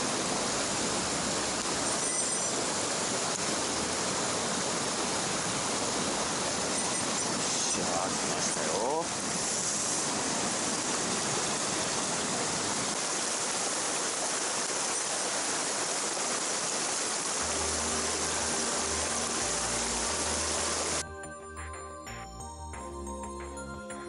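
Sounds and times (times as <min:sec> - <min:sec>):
stream water rushing: 0:00.0 - 0:21.1
soft background music: 0:17.4 - 0:24.0.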